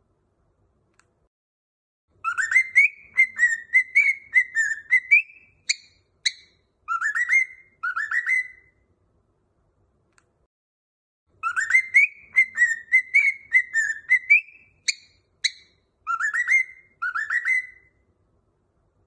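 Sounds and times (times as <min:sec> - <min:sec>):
cockatiel whistling a tune: 0:02.2 - 0:08.8, 0:11.4 - 0:18.0.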